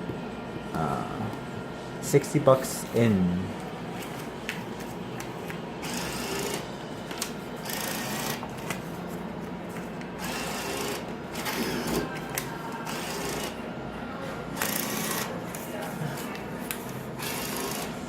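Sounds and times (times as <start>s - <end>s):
bill acceptor motor whirring: 5.8s - 9.0s, 10.1s - 13.6s, 14.5s - 15.6s, 16.6s - 18.0s.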